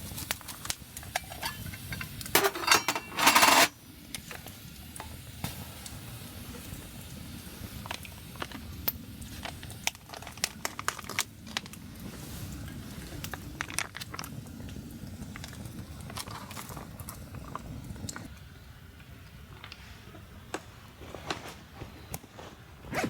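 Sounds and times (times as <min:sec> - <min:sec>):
campfire crackling and popping: 0:00.0 - 0:02.4, 0:03.8 - 0:19.8.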